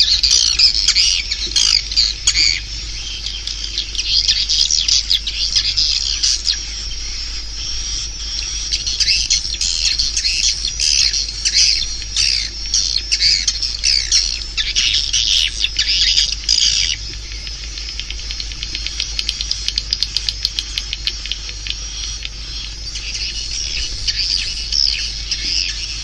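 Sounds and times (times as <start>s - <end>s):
swiftlets twittering: 0.0s - 26.0s
dry clicks: 17.0s - 22.8s.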